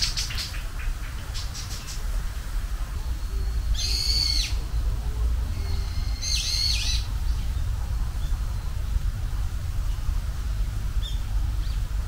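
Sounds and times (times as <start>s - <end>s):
low rumble: 1.2s - 12.0s
whistled bird calls: 3.1s - 8.4s.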